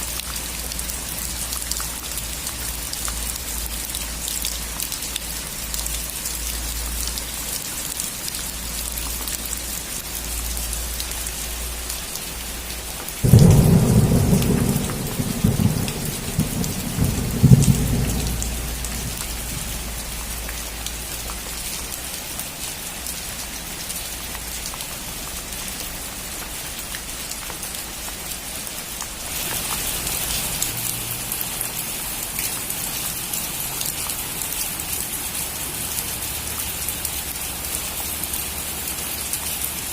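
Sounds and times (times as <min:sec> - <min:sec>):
rain falling on a roof: 0:00.0 - 0:39.9
thunder clap and rumble: 0:13.2 - 0:20.6.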